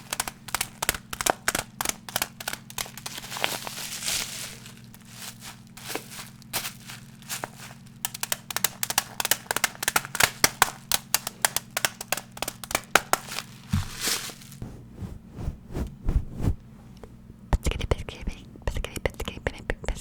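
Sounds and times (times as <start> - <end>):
tapping on hard object: 0.0 - 3.2, 8.1 - 13.9
scratchy brushing sweep: 13.8 - 16.6.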